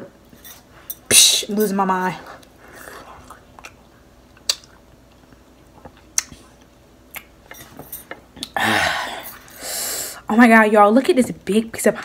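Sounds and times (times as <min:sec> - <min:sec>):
wet mouth clicks and smacks: 0:03.3 - 0:03.8, 0:04.4 - 0:04.8, 0:05.8 - 0:06.5, 0:07.1 - 0:07.3.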